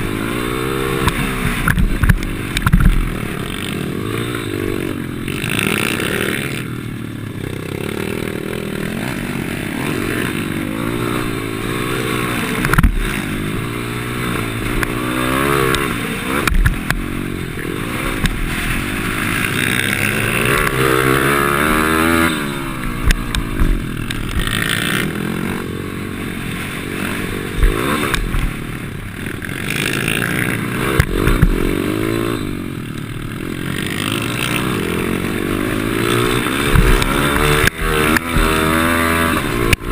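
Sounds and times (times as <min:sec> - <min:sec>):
small motorbike engine revving: 0:00.0 - 0:39.9
sharp knocks: 0:12.6 - 0:13.0.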